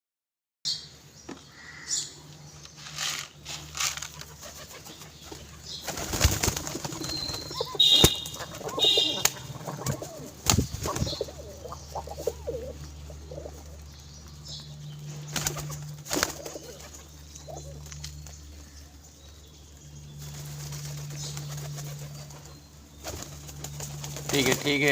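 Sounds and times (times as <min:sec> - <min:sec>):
birds calling: 0:00.7 - 0:24.9
low steady hum: 0:00.8 - 0:24.9
birds flapping wings: 0:02.8 - 0:12.7, 0:15.2 - 0:18.6, 0:20.2 - 0:24.9.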